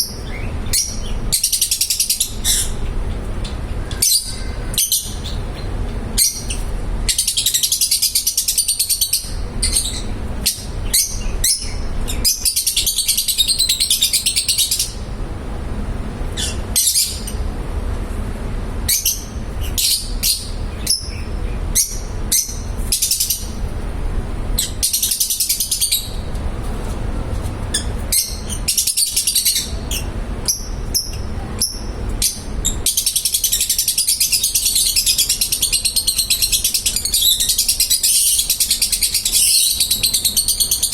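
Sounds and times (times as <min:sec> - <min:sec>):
love birds chattering and chirping: 0:00.0 - 0:15.2, 0:16.2 - 0:17.5, 0:18.8 - 0:40.9
steady low rumble: 0:09.0 - 0:33.6.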